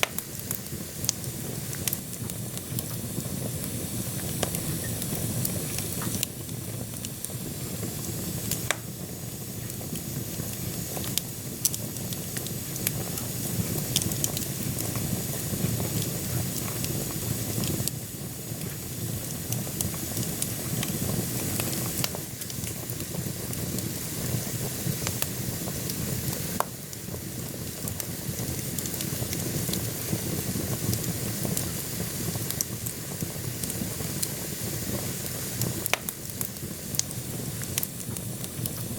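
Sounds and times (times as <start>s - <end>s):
fire rumbling in a stove: 0.0s - 38.9s
logs crackling and popping: 26.6s - 38.9s.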